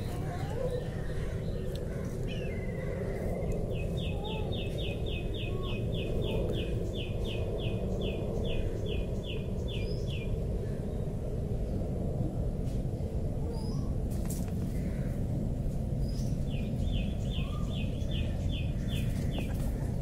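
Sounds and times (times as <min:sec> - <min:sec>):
bird chirps: 0:16.0 - 0:19.7.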